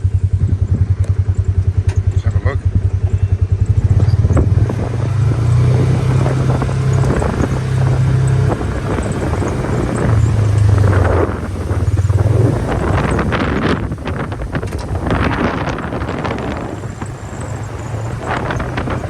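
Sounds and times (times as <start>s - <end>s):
vehicle engine running: 0.0s - 19.0s
light rattles and knocks: 5.5s - 19.0s.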